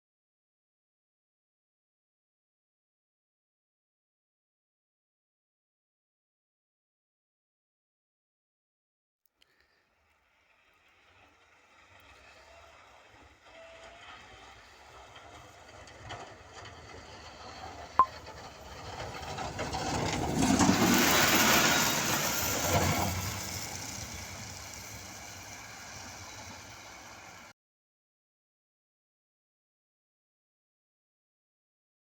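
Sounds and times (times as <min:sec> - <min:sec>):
vehicle passing on road: 0:10.3 - 0:27.5.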